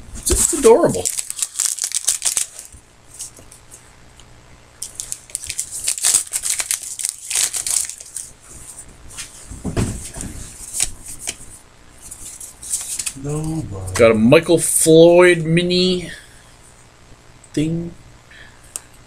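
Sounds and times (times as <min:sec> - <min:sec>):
plastic packaging crinkling: 0:00.2 - 0:03.3, 0:04.8 - 0:08.4.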